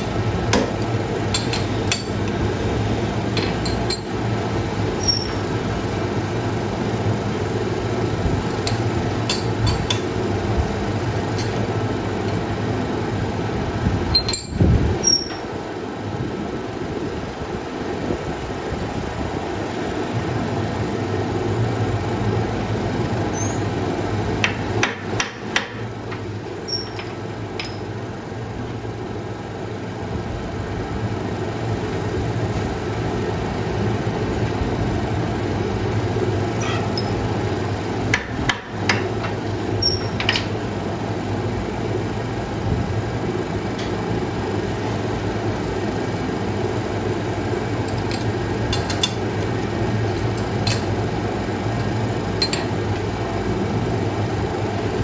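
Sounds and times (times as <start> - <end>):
low machine hum: 0.0 - 55.0
hammer striking metal: 8.7 - 10.1.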